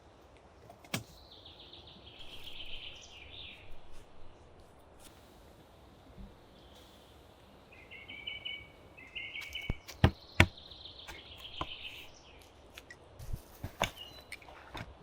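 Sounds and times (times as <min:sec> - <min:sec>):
forest ambience: 0:00.0 - 0:15.0
small bird singing trills: 0:01.2 - 0:03.8, 0:06.5 - 0:12.4.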